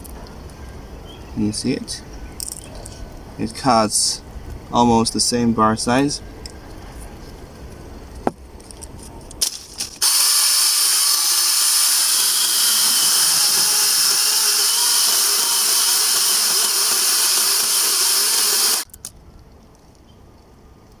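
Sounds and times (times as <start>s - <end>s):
chainsaw cutting tree trunk: 10.0s - 18.9s.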